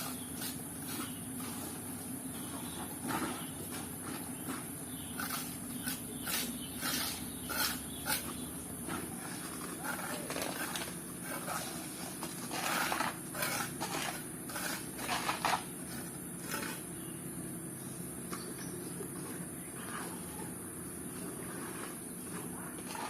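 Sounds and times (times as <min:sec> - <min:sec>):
tools scraping wet concrete: 0:00.0 - 0:17.0, 0:19.2 - 0:23.0
low mechanical hum: 0:00.0 - 0:23.0.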